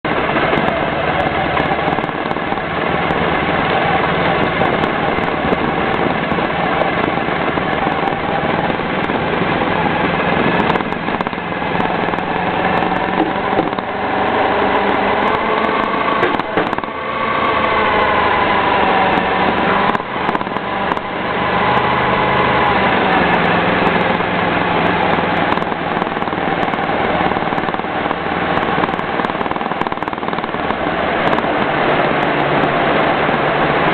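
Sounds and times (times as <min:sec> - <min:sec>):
motorcycle engine running: 0:00.0 - 0:33.9
road and wind noise: 0:00.0 - 0:33.9.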